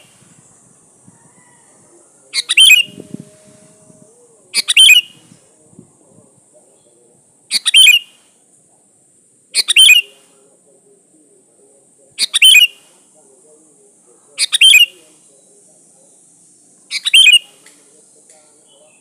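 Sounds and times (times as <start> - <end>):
faint high hiss: 0.0 - 19.0
bird calling: 1.1 - 3.3, 4.2 - 5.2, 6.8 - 8.2, 9.5 - 10.4, 12.2 - 13.0, 14.1 - 16.2, 16.8 - 19.0.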